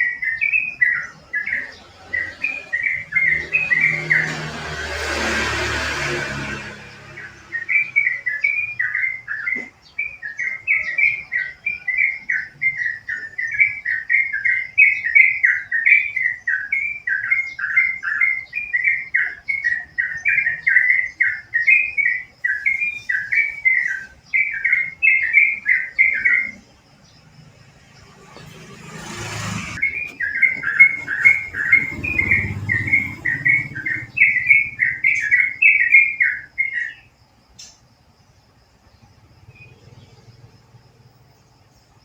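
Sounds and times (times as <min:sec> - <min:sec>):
bird singing bubbling notes: 0:29.8 - 0:37.1.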